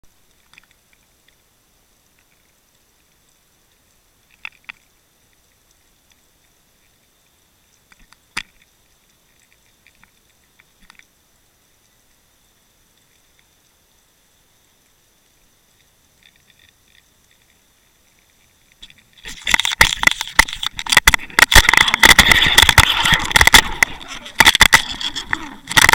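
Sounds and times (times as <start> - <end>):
faint hiss: 0.0 - 25.9
sharp clicks and ticks: 18.8 - 25.9.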